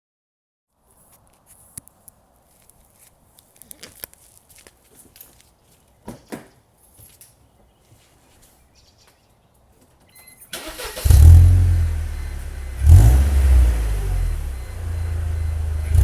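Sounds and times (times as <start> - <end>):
car engine starting and idling: 10.5 - 16.0
engine revving: 10.6 - 16.0.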